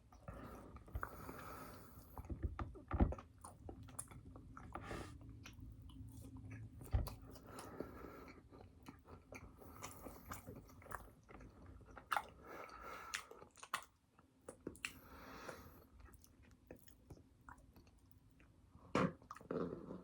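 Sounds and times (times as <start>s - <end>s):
person chewing food: 3.1s - 18.5s.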